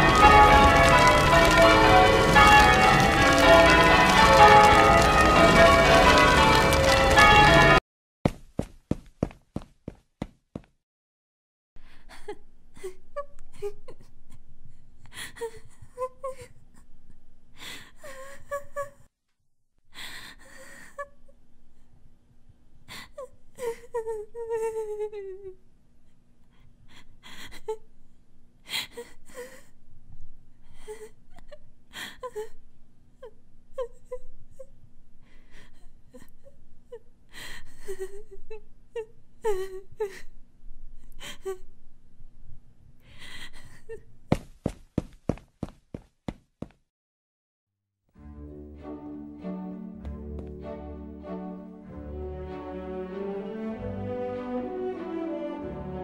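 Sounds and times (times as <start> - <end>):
high-pitched voice whimpering and sobbing: 12.0 - 14.2, 22.9 - 25.6, 39.4 - 40.3.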